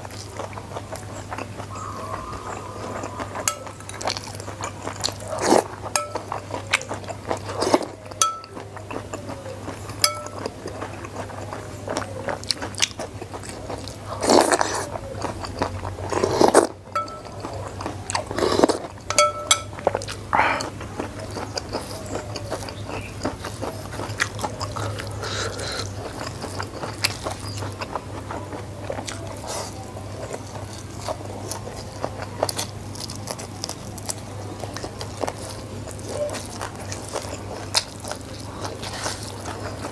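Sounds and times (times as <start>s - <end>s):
chewing and crunching: 0.0s - 39.9s
spoon clinking on bowl: 3.5s - 3.8s, 6.0s - 6.4s, 8.2s - 8.6s, 10.0s - 10.5s, 16.9s - 17.6s, 19.1s - 19.8s.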